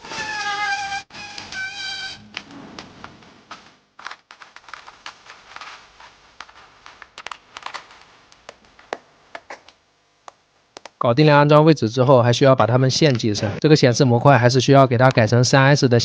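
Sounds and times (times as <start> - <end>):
plastic being cut by hand: 0.0 - 9.8.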